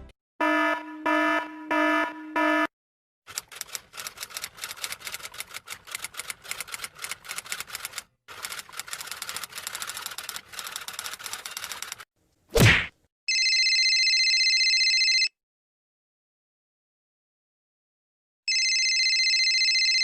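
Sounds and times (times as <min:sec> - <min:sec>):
rapid typing clicks: 0:03.3 - 0:12.0.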